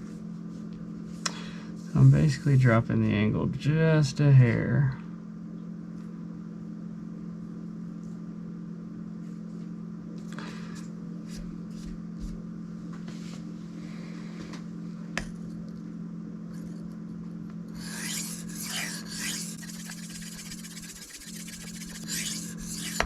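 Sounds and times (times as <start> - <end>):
steady low hum: 0.0 - 23.0
knife scraping on whetstone: 17.8 - 23.0.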